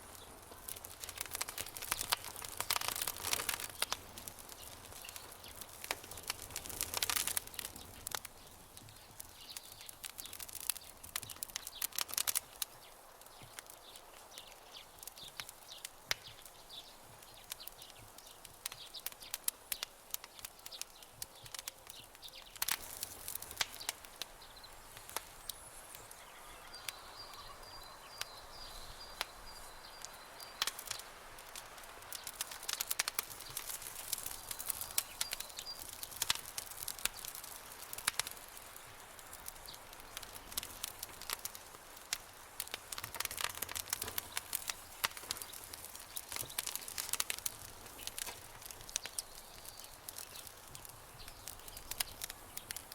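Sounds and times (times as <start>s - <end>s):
campfire crackling and popping: 0.0s - 52.9s.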